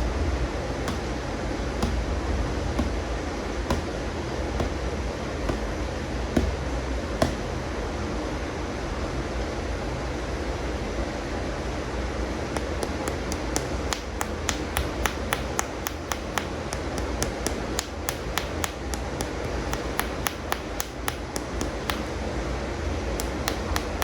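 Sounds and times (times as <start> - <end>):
taps on plastic toy figures: 0.9 - 1.1, 1.8 - 2.0, 3.7 - 3.9, 5.5 - 5.7, 12.6 - 22.1, 23.2 - 24.0.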